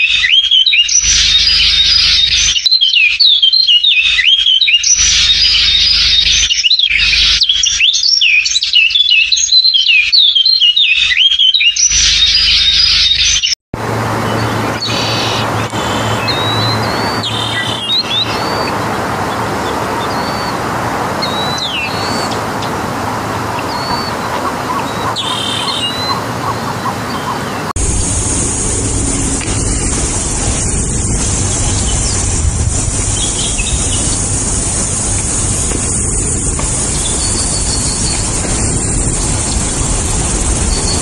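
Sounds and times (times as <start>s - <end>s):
songbirds chirping and whistling: 0.0s - 27.8s, 31.0s - 41.0s
steady high-pitched hiss: 27.8s - 41.0s.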